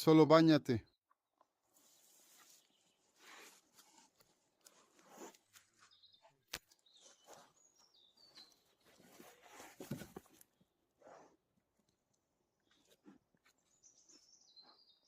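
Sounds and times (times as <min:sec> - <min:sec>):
bird chirps: 0:05.2 - 0:09.4, 0:12.6 - 0:15.0
brief scuffling noise: 0:08.9 - 0:10.4.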